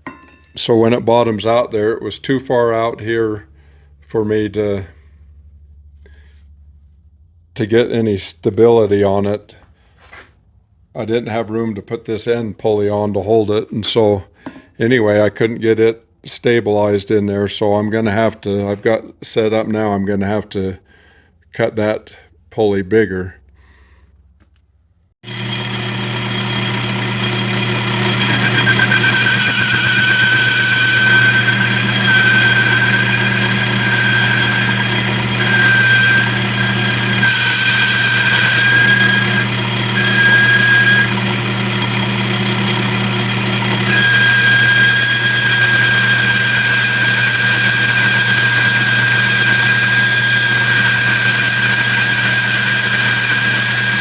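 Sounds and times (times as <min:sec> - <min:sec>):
high cutting whine: 0:25.2 - 0:54.0
lathe motor hum: 0:25.2 - 0:54.0.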